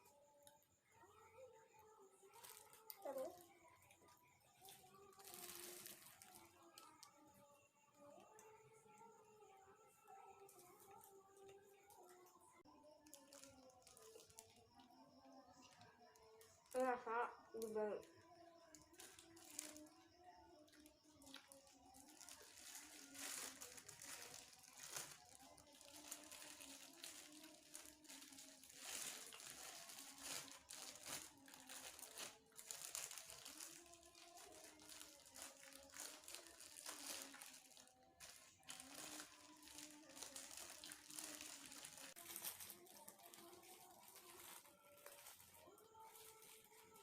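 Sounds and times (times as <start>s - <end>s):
plastic wrapping crinkling: 2.2s - 4.0s, 4.6s - 7.2s, 13.0s - 14.6s, 18.7s - 19.9s, 20.7s - 47.0s.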